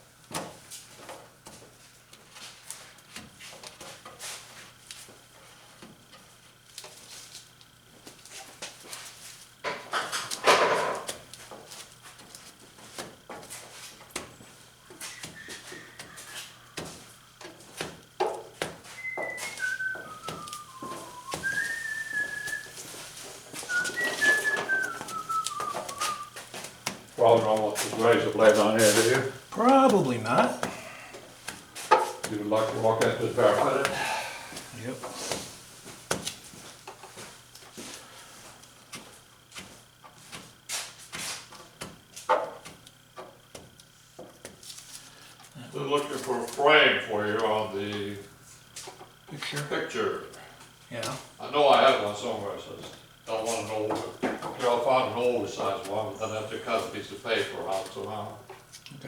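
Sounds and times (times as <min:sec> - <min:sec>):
faint steady hum: 0:00.0 - 0:59.0
person whistling a slow tune: 0:18.9 - 0:23.0, 0:23.6 - 0:26.4
hand tools scraping: 0:19.0 - 0:26.4.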